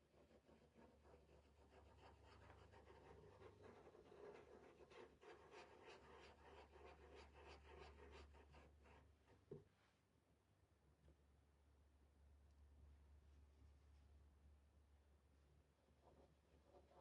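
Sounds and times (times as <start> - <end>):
brush scratching paint: 0.0 - 9.5.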